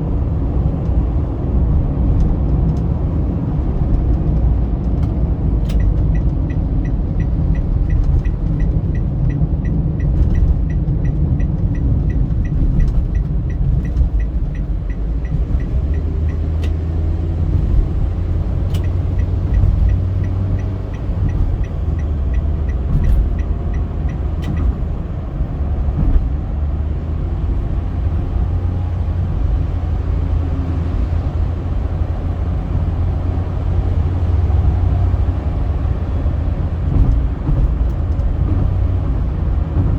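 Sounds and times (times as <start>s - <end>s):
car road and engine rumble: 0.0s - 39.9s
regular high ticking: 18.6s - 24.8s.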